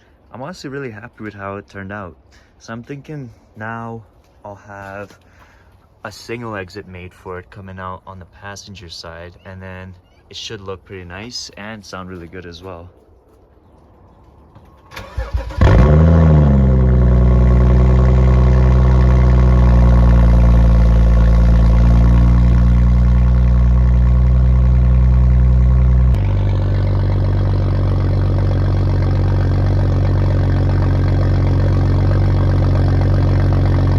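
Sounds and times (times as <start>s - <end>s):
car engine idling: 15.0s - 33.9s.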